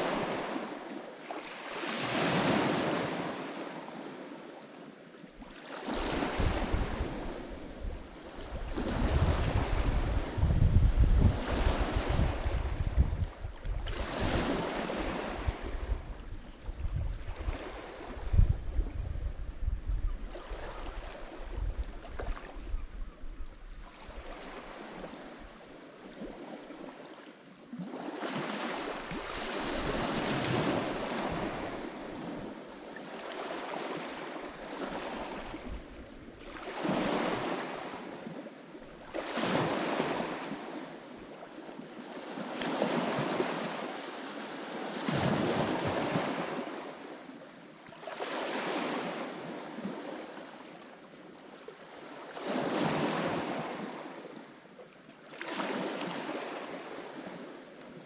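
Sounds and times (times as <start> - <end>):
waves washing onto shore: 0.0 - 22.8, 23.7 - 54.6, 55.2 - 58.0
wind rumble on microphone: 6.0 - 25.6, 34.9 - 37.5.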